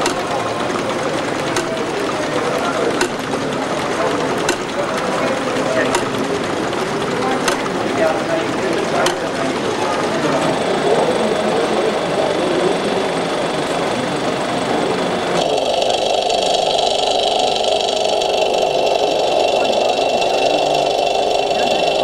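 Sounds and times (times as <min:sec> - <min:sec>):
engine machinery running: 0:00.0 - 0:22.0
running hum with held tones: 0:00.0 - 0:22.0.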